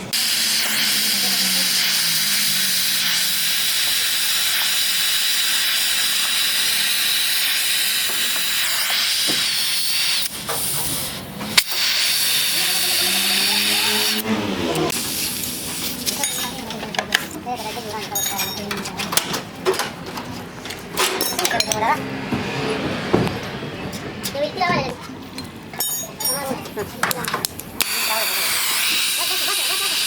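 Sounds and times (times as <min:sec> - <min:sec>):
loud hiss of air jet: 0:00.0 - 0:16.1, 0:27.8 - 0:30.0.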